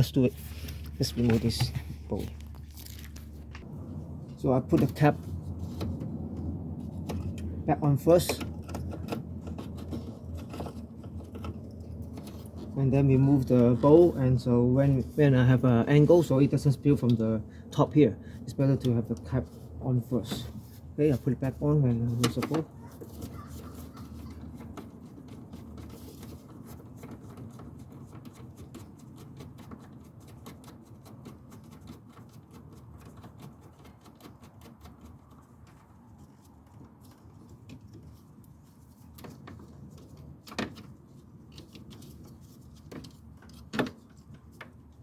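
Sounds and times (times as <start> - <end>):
steady low hum: 0.0 - 23.4
plastic parts clicking and knocking: 22.1 - 45.0.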